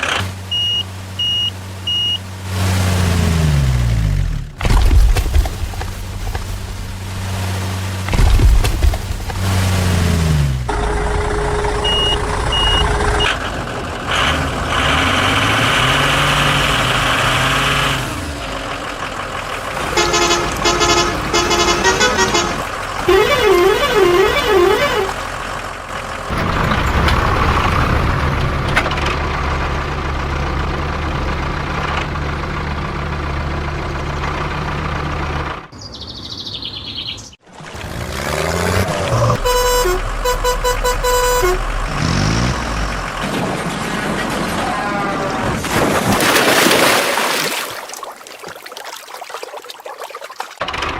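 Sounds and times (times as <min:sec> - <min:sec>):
heavy vehicle engines running: 0:00.0 - 0:46.1
vehicle horns: 0:19.8 - 0:25.3, 0:39.1 - 0:43.1.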